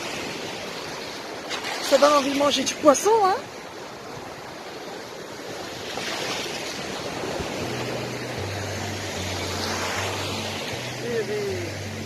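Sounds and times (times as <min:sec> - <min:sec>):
sea waves washing onto beach: 0:00.0 - 0:12.0
low background music notes: 0:07.2 - 0:12.0.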